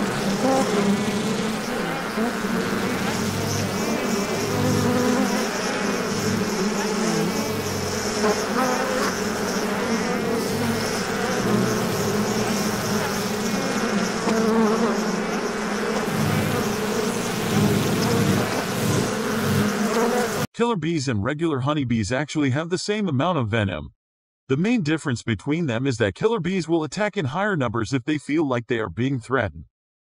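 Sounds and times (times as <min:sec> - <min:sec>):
honeybees buzzing: 0:00.0 - 0:20.5.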